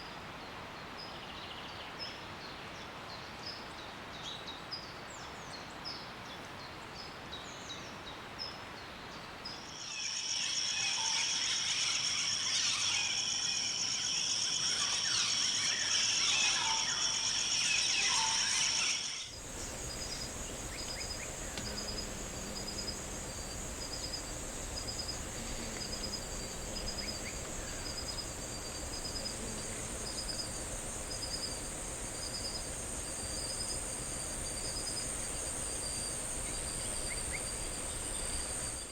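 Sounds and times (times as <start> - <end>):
high insect buzz: 9.6 - 38.9
insect trilling: 9.7 - 38.9.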